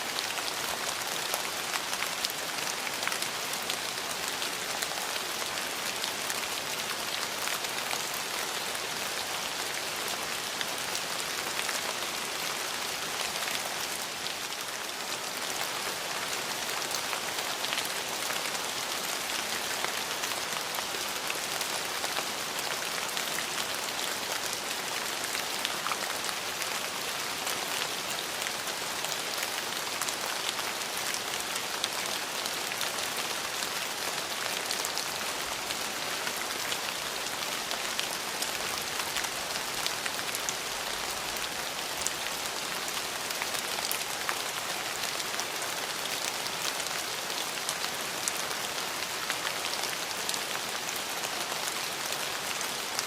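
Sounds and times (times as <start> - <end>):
steady rain hiss: 0.0 - 53.0.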